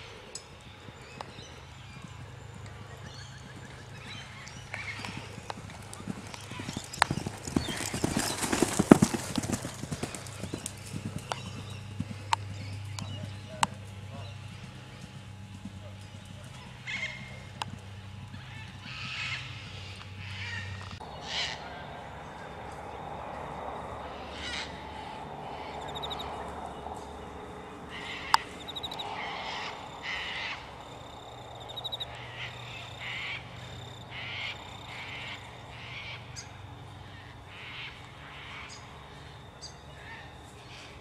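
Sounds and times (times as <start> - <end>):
bird calls: 0.0 - 23.0, 24.0 - 41.0.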